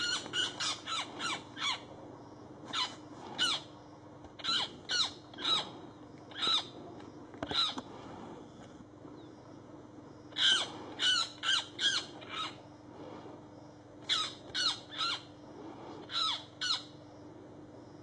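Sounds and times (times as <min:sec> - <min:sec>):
bird squawks: 0:00.0 - 0:01.9, 0:02.7 - 0:03.7, 0:04.4 - 0:06.8, 0:07.4 - 0:07.8, 0:10.3 - 0:12.6, 0:14.0 - 0:15.3, 0:16.0 - 0:16.9.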